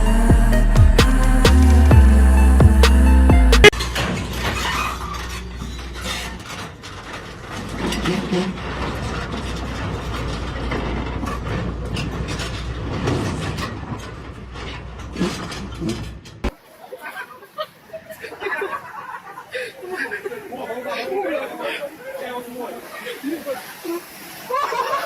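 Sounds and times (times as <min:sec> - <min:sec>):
background music: 0:00.0 - 0:03.8
vehicle rumbling: 0:00.0 - 0:16.6
clicks and rattles: 0:03.7 - 0:16.5.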